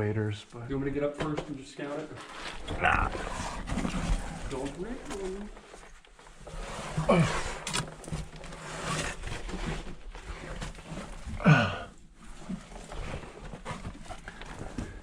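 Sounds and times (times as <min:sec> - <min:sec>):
man grunting with effort: 0:11.4 - 0:11.9.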